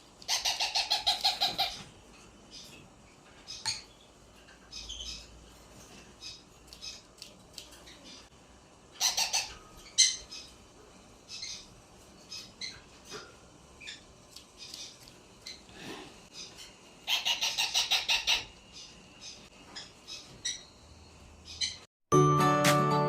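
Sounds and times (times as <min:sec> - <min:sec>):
parrot chirps and squawks: 0:00.2 - 0:01.9, 0:08.9 - 0:10.6, 0:16.3 - 0:20.7.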